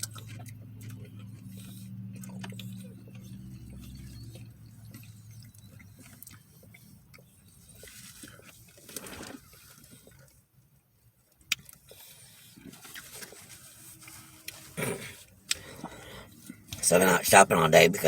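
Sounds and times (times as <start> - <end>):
faint low hum: 0.0 - 11.3
food wrapper rustling: 5.6 - 10.4, 11.2 - 14.8.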